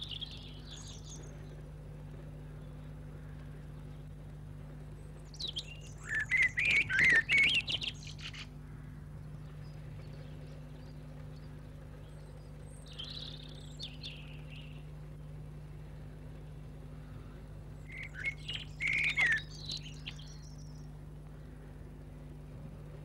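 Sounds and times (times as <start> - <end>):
steady low hum: 0.0 - 23.0
bird warbling chirps: 5.3 - 8.5, 17.9 - 20.8.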